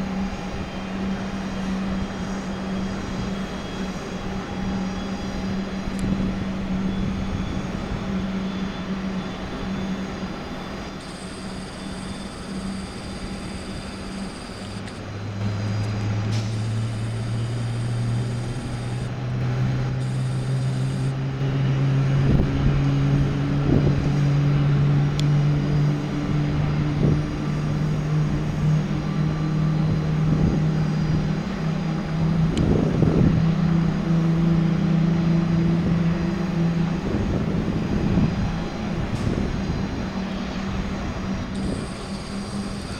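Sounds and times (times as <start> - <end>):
jet engine spooling up: 0.0 - 42.9
high hiss: 15.5 - 19.2, 20.0 - 21.1, 41.5 - 42.9.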